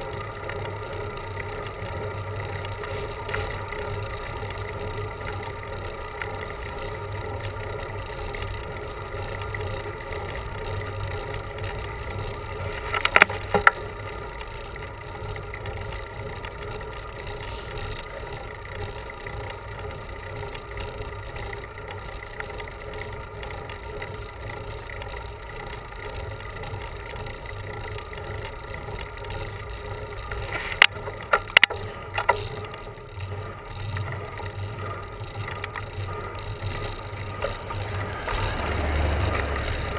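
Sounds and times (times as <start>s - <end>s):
steady hum: 0.0s - 39.9s
road and wind noise: 29.2s - 39.9s.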